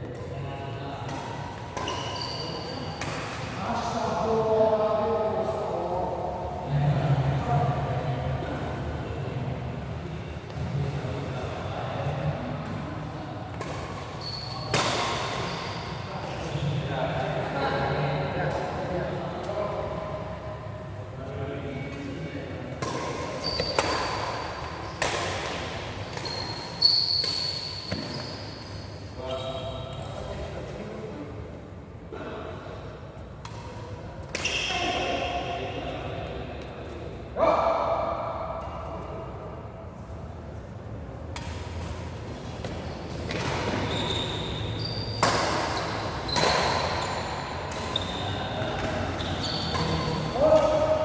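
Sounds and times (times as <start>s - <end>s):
shoe squeaks on court floor: 1.1s - 3.4s, 13.6s - 16.6s, 23.0s - 25.0s, 26.1s - 30.1s, 42.6s - 51.0s
racket hitting shuttlecock: 22.8s - 28.3s, 45.1s - 51.0s.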